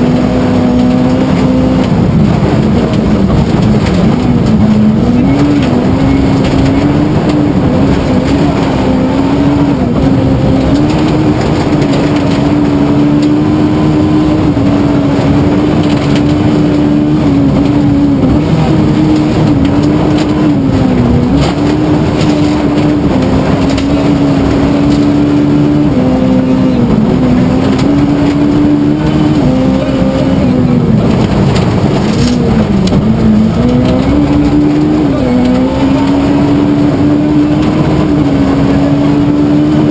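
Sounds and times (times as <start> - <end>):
rally car engine revving hard: 0.0 - 39.9.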